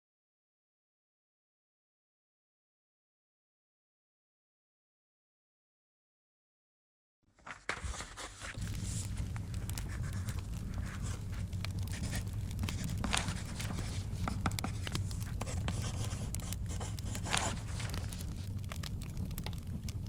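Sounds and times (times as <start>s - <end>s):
book pages turning: 7.3s - 19.9s
wood fire crackling and popping: 7.4s - 20.0s
low rumble: 8.6s - 20.0s.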